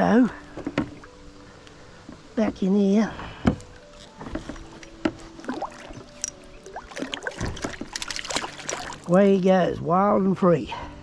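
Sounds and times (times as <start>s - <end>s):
kayak gear knocks and creaks: 0.3s - 1.2s, 2.0s - 9.0s
small water splashes: 5.2s - 9.4s.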